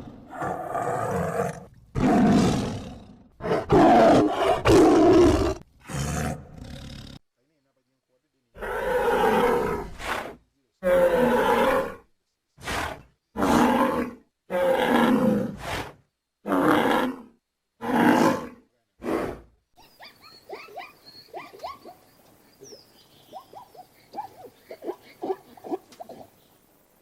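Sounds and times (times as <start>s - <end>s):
large animal roaring: 0.0s - 7.2s, 8.6s - 12.0s, 12.6s - 15.7s, 16.5s - 19.5s.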